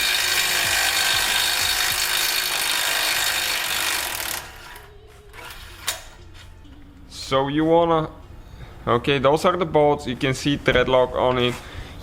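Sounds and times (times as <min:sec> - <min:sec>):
power tool spinning out bolt: 0:00.0 - 0:06.1.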